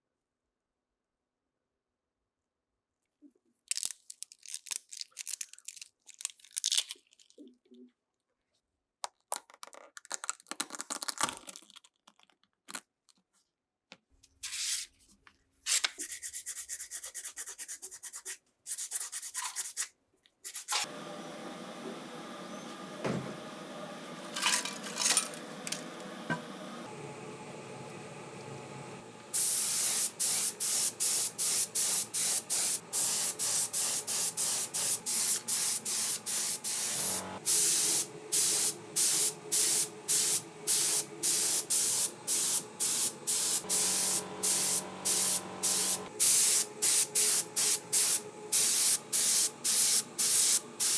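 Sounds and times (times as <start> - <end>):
spray hiss: 29.3 - 50.9.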